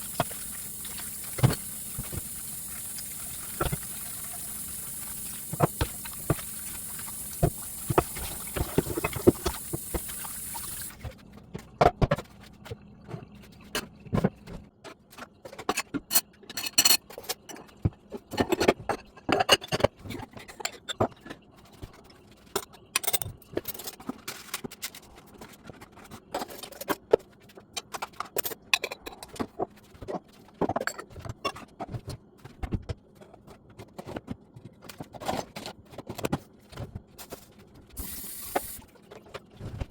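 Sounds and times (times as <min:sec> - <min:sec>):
steady hiss: 0:00.0 - 0:11.0, 0:38.0 - 0:38.8.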